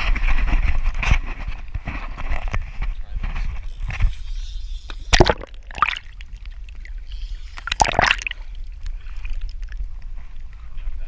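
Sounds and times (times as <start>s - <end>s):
water splashing and sloshing: 5.0s - 10.4s.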